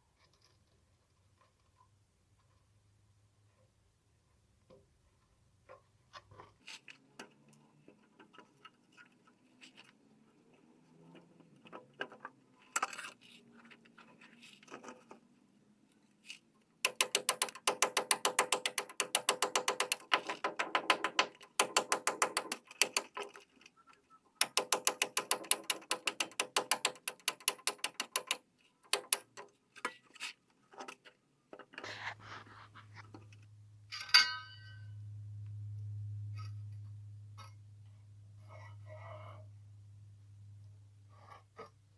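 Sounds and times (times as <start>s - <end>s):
clicks and taps: 16.8s - 23.4s, 24.4s - 29.6s.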